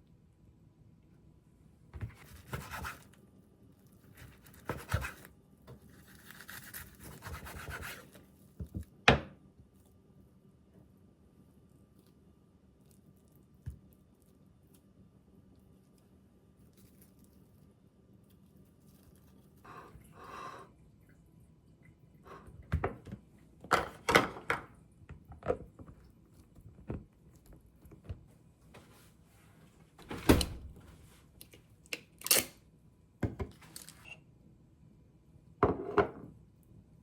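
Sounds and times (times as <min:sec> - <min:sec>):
objects knocking and clattering: 0:22.7 - 0:25.8.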